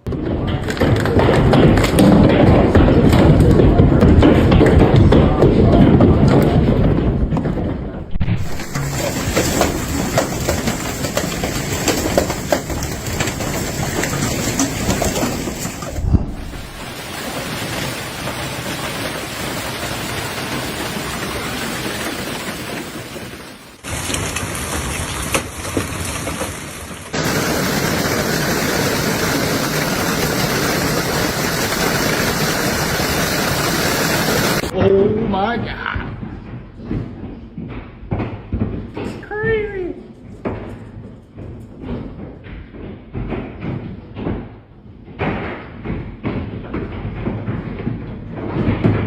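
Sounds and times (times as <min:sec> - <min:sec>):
sharp knocks: 0:00.0 - 0:23.9
heavy rain downpour: 0:08.2 - 0:34.7.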